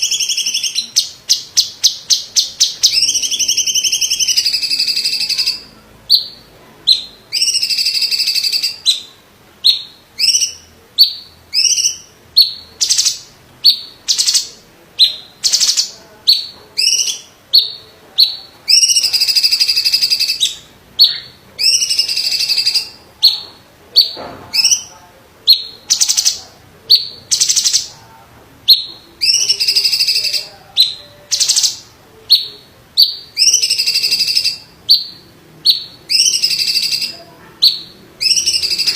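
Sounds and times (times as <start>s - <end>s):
bird singing loudly: 0.0s - 24.9s, 25.5s - 27.9s, 28.7s - 38.9s.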